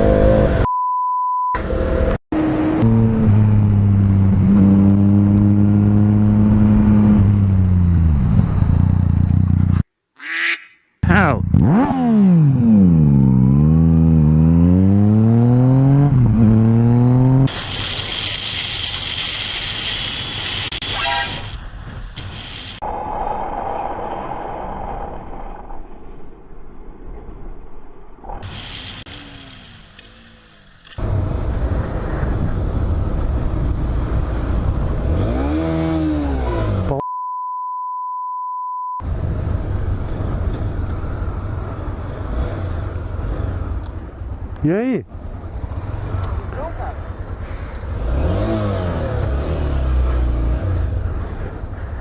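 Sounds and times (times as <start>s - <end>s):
wind and road noise: 0.0s - 0.7s, 1.6s - 10.6s, 11.4s - 37.0s, 39.0s - 52.0s
censor bleep: 0.6s - 1.6s, 37.0s - 39.0s
motorcycle engine revving: 2.4s - 9.8s, 11.4s - 17.5s, 34.0s - 37.0s, 47.8s - 51.4s.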